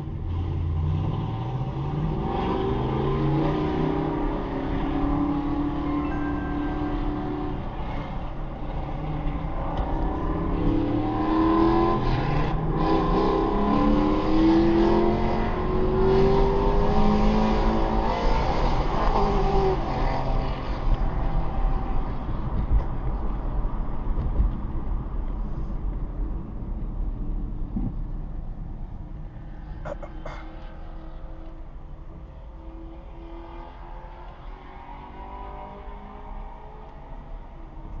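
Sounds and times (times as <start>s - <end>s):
car engine revving and accelerating: 0.0s - 23.2s, 29.4s - 38.0s.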